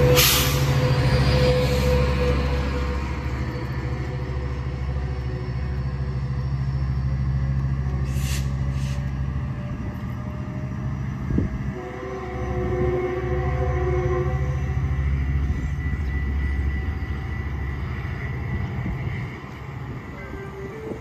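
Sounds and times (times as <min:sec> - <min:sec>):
diesel locomotive engine droning: 0:00.0 - 0:21.0
short hisses: 0:08.0 - 0:09.1.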